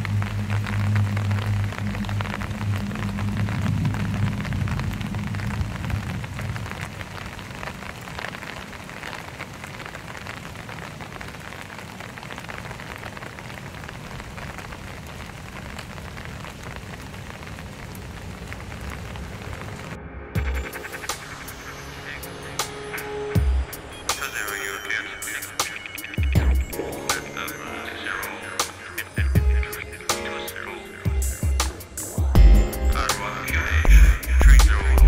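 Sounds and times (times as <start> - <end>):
low hum: 0.0 - 6.9
rain on wet pavement: 0.0 - 35.0.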